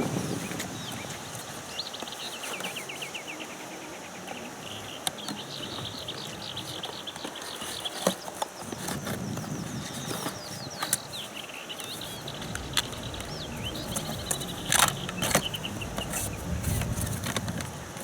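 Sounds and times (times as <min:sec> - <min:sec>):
outdoor background noise: 0:00.0 - 0:18.0
small bird singing trills: 0:09.5 - 0:17.2.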